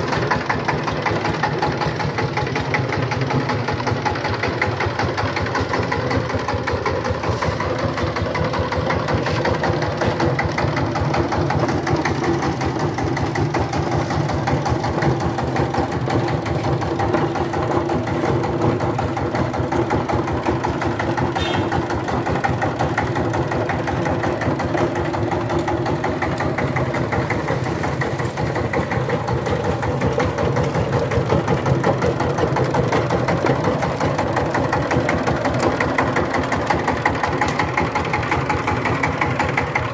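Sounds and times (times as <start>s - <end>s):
diesel tiller engine running: 0.0s - 39.9s.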